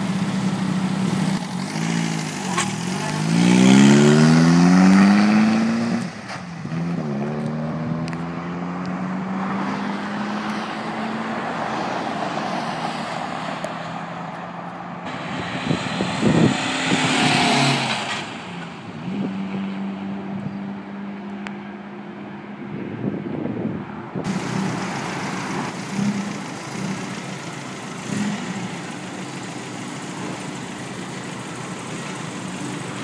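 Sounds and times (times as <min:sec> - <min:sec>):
road noise: 0:00.0 - 0:33.0
car engine running: 0:24.3 - 0:33.0.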